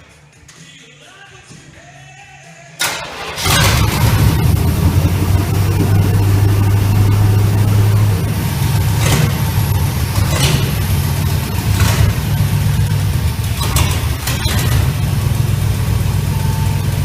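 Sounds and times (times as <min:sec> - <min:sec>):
car engine idling: 0:02.8 - 0:17.0.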